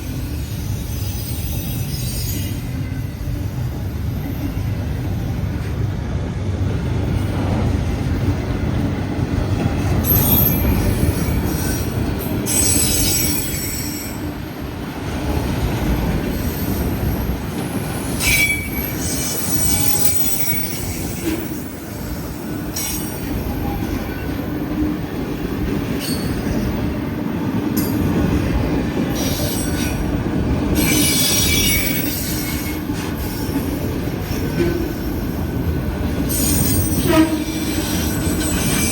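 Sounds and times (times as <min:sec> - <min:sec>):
freight train rumbling on rails: 0:00.0 - 0:38.9
metallic wheel squeal: 0:00.4 - 0:03.1, 0:18.1 - 0:21.7, 0:30.8 - 0:33.4, 0:36.3 - 0:38.9.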